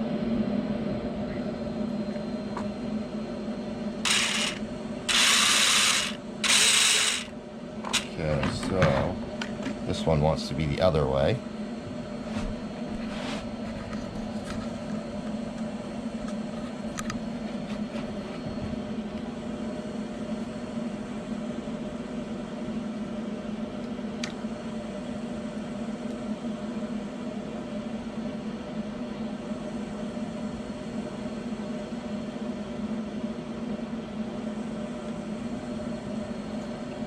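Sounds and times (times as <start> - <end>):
electric motors humming: 0.6 - 19.6.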